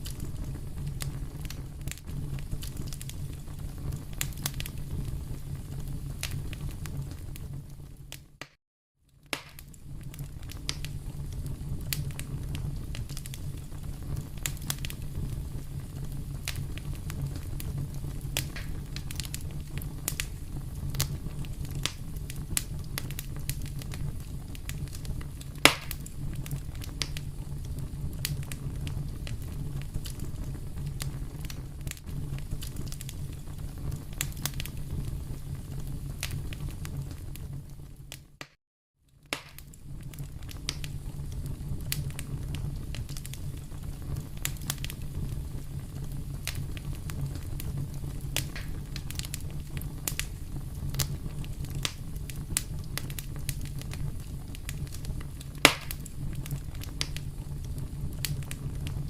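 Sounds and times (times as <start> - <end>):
steady low rumble: 0.0 - 8.2, 9.6 - 38.0
fire pops: 0.0 - 59.0
wood fire crackling: 0.0 - 59.0.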